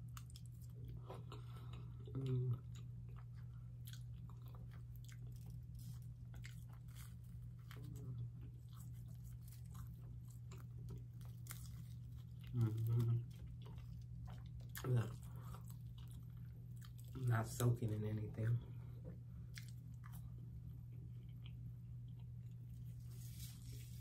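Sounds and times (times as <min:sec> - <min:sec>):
chewing and biting food: 0:00.0 - 0:17.7, 0:19.0 - 0:23.0
steady low hum: 0:00.0 - 0:24.0
person humming: 0:12.5 - 0:13.3.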